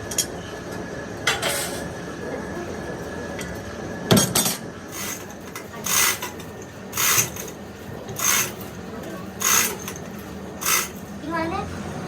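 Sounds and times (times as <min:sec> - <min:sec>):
scraping strokes on metal: 0:04.9 - 0:07.5, 0:08.2 - 0:08.7, 0:09.4 - 0:10.0, 0:10.6 - 0:11.0.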